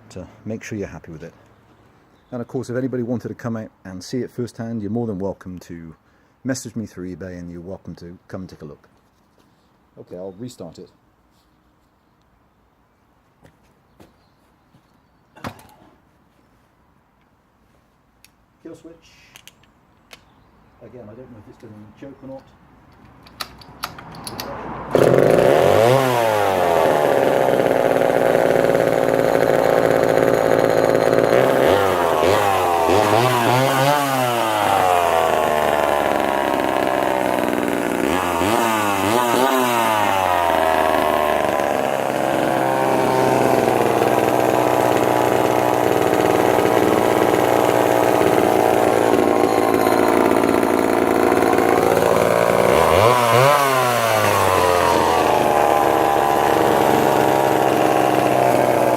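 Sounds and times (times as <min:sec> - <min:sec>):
chainsaw revving: 0:24.9 - 0:58.9.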